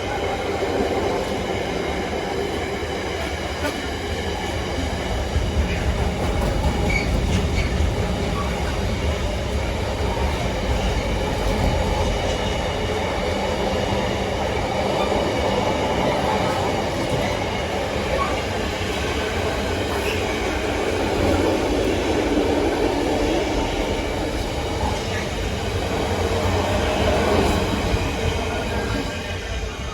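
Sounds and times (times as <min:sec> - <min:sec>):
freight train wheels rumbling: 0:00.0 - 0:29.9.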